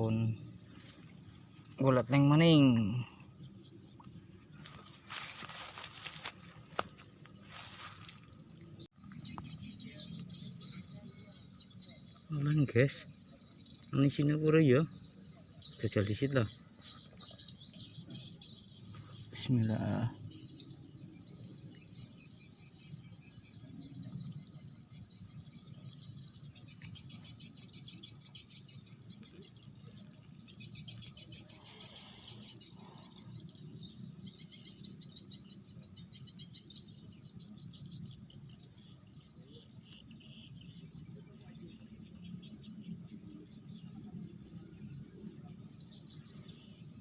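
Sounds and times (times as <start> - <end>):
crickets chirping: 0.0 - 47.0.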